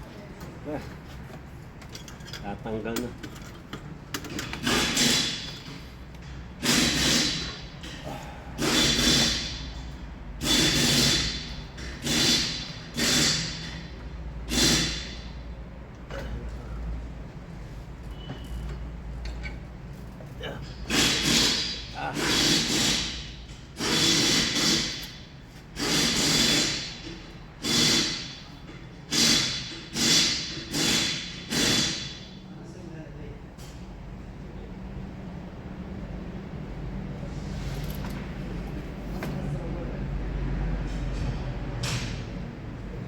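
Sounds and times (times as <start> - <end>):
hand tool scraping: 12.0 - 13.7, 20.8 - 25.2.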